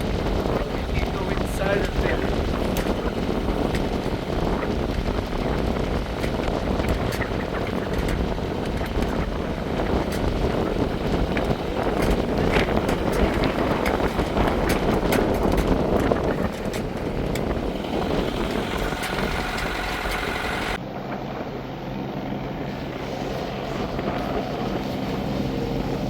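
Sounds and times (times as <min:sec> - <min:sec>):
boat rushing through choppy water: 0:00.0 - 0:26.0
low boat engine hum: 0:00.0 - 0:26.0
wind buffeting microphone: 0:00.0 - 0:26.0.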